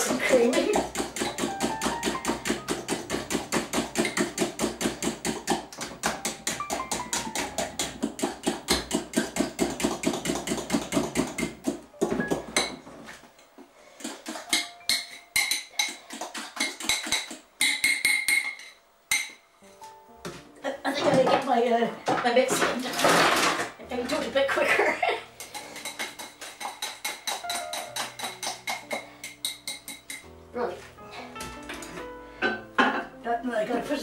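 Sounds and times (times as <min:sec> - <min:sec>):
utensil beating in mixing bowl: 0:00.0 - 0:12.7, 0:14.0 - 0:18.2, 0:25.2 - 0:30.3.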